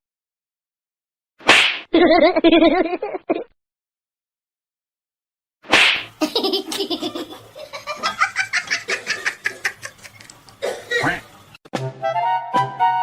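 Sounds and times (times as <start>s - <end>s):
person laughing hard: 2.0s - 3.4s, 6.2s - 10.3s.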